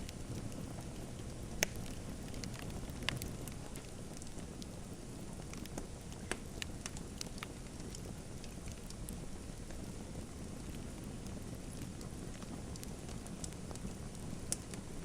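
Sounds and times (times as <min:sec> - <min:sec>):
wood fire crackling: 0:00.0 - 0:15.0
sharp pops of fire: 0:00.1 - 0:04.4, 0:05.6 - 0:08.9.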